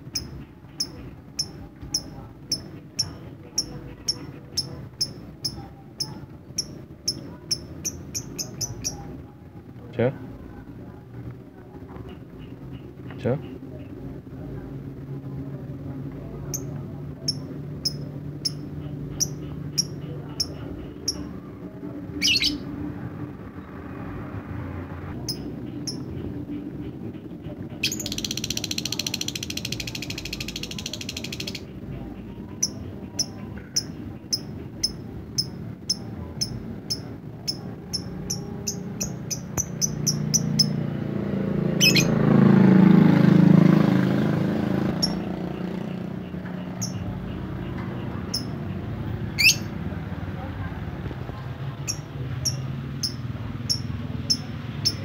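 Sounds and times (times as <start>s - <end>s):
bird buzzy rattling trill: 0.0s - 9.1s, 27.8s - 31.7s, 32.5s - 40.8s, 41.8s - 42.3s, 49.4s - 49.7s
bird ticking chirps: 0.0s - 9.1s, 16.5s - 21.3s, 25.2s - 26.6s, 27.8s - 40.8s, 41.8s - 42.2s, 44.9s - 49.7s, 51.8s - 55.0s.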